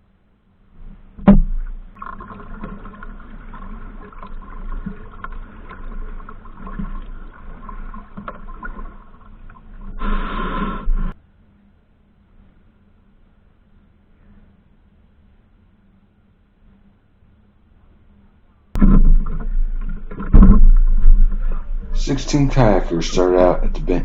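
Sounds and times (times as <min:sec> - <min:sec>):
river water noise: 0:01.3 - 0:11.2, 0:18.8 - 0:24.0.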